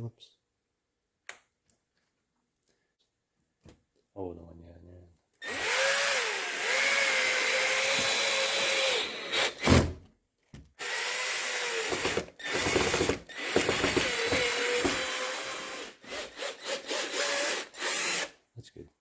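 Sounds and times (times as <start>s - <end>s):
cordless drill motor whining: 5.4s - 9.7s, 10.8s - 18.3s.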